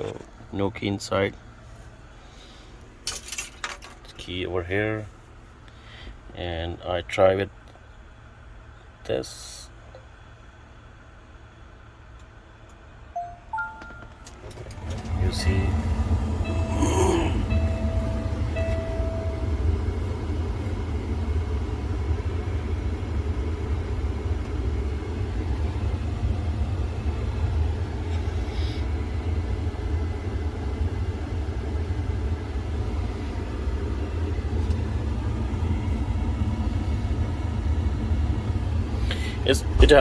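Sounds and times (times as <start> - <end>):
steady low engine rumble: 0.0 - 40.0
short electronic tone: 13.2 - 14.4.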